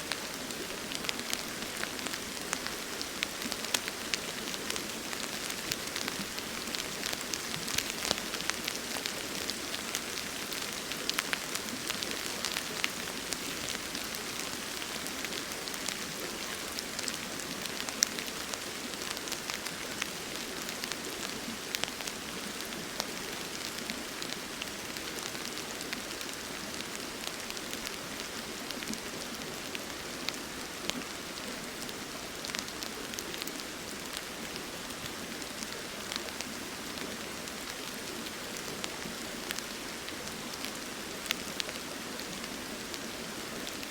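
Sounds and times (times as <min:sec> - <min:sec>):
flowing river: 0:00.0 - 0:43.9
steady rain falling: 0:00.0 - 0:43.9.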